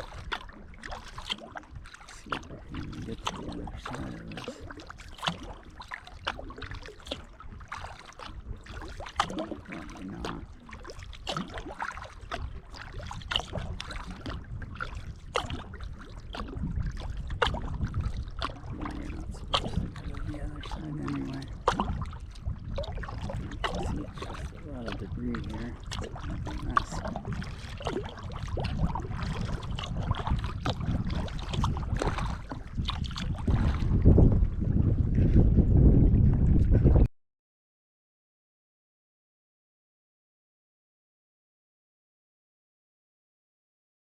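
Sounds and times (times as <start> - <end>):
water dripping from paddle: 0.0 - 33.8
paddle splashing in water: 0.0 - 37.1
steady low rumble: 1.7 - 4.8, 12.6 - 37.1.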